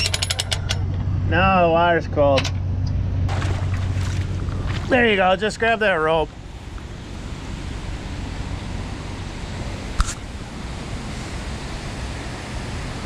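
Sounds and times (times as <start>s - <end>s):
water noise: 2.9s - 13.0s.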